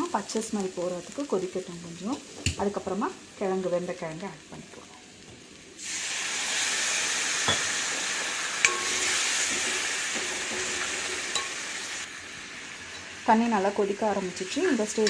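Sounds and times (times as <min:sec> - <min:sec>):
masala sizzling in a hot pan: 0:00.0 - 0:15.0.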